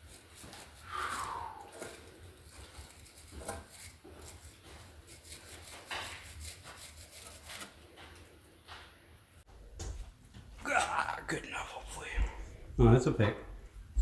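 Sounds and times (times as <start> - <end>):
hand tool scraping and clicking: 0.0 - 8.3.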